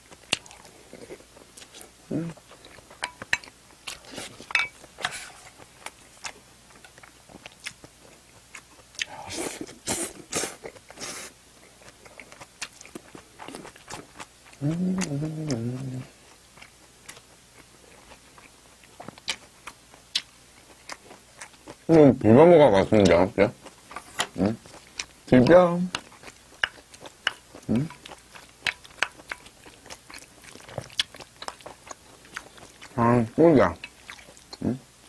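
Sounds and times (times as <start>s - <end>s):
close chewing and lip-smacking: 0.0s - 22.2s, 22.8s - 35.0s
person humming with mouth full: 2.1s - 2.4s, 14.6s - 16.2s.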